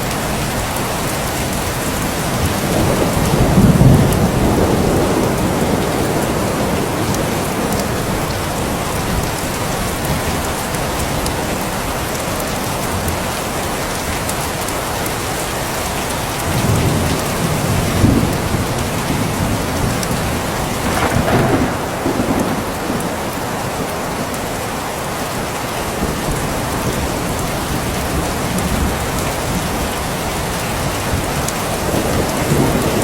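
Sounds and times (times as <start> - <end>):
heavy rain hissing: 0.0 - 33.0
thunder rumbling: 1.8 - 10.6, 16.4 - 33.0.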